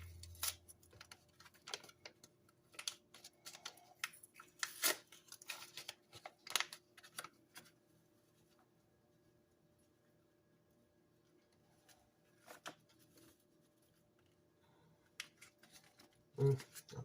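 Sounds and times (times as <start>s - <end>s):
packet crinkling and rustling: 0.0s - 7.8s, 15.2s - 17.0s.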